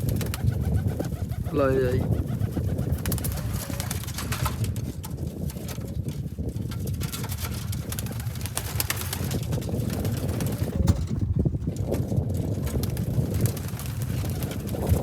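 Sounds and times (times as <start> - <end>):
pigeons cooing: 0.0 - 4.6.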